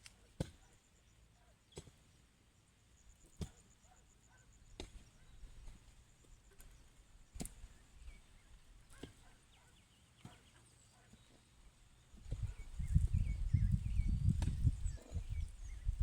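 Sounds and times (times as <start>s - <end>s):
hand tool chopping: 0.4s - 0.7s, 4.8s - 5.1s, 7.4s - 7.7s.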